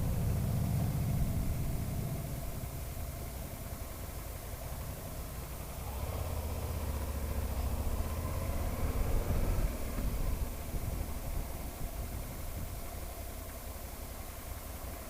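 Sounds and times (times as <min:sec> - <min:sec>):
motorcycle engine running: 0:00.0 - 0:15.0
wind noise on microphone: 0:08.6 - 0:13.1.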